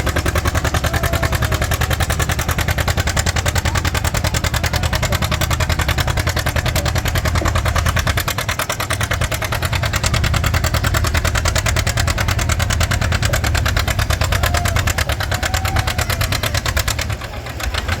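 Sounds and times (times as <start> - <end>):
tractor engine exhaust pulses: 0.0 - 18.0.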